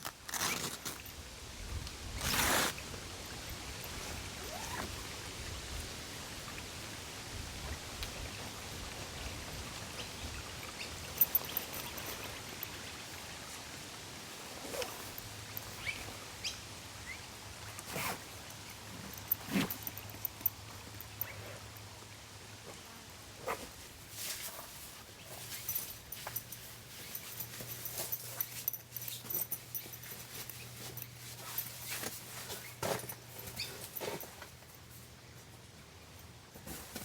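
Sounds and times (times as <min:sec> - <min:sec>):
outdoor background hiss: 0:00.0 - 0:37.0
rustle: 0:00.0 - 0:37.0.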